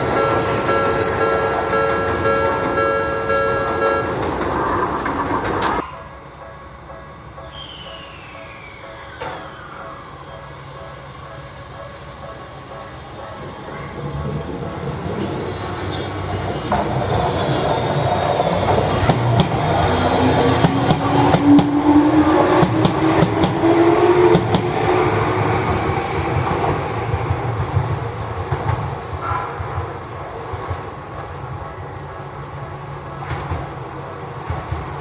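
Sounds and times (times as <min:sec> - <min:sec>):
train motor hum: 0:00.0 - 0:05.8, 0:09.6 - 0:35.0
train wheels clicking over rail joints: 0:00.0 - 0:05.8, 0:13.6 - 0:31.8.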